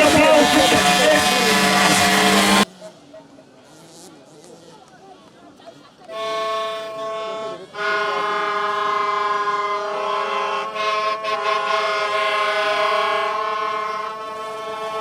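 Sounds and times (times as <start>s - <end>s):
loud horn-like chord: 0.0s - 2.6s.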